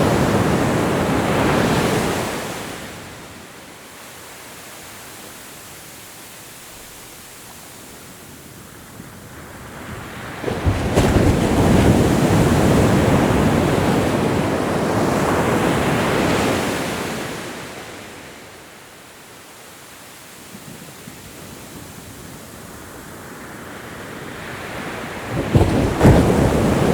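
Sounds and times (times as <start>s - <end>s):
ocean wave breaking: 0.0s - 3.4s, 24.8s - 26.9s
soft hiss of the sea: 0.0s - 9.7s.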